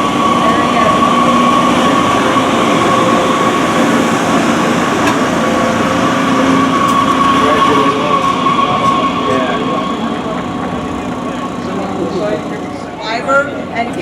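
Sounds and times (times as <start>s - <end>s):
mechanical drone with high whine: 0.0s - 14.0s.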